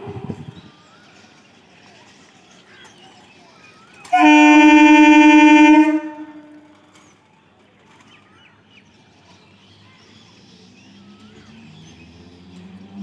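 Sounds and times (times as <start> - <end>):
train running hum: 0.0 - 7.4
train horn: 4.1 - 6.8.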